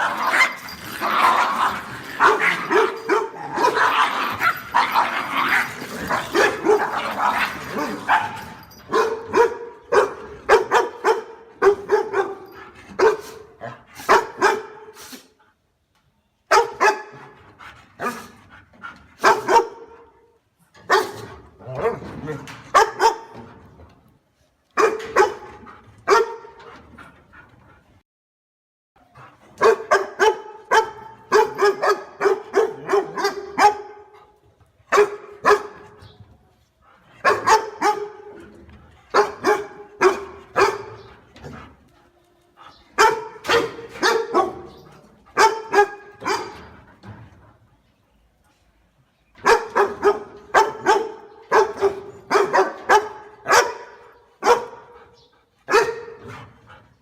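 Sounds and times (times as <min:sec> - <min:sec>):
dog barking: 0:02.2 - 0:04.0, 0:08.1 - 0:12.4, 0:13.0 - 0:14.9, 0:16.5 - 0:17.2, 0:19.2 - 0:20.0, 0:20.9 - 0:21.2, 0:22.7 - 0:23.4, 0:24.8 - 0:25.5, 0:26.1 - 0:26.6, 0:29.6 - 0:34.1, 0:34.9 - 0:35.8, 0:37.2 - 0:38.3, 0:39.1 - 0:41.1, 0:43.0 - 0:44.8, 0:45.4 - 0:46.6, 0:49.4 - 0:55.0, 0:55.7 - 0:56.2.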